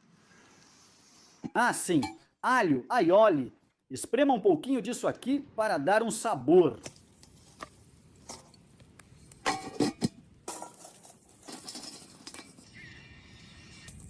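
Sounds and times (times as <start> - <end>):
cooking gear clinking: 9.4 - 12.8.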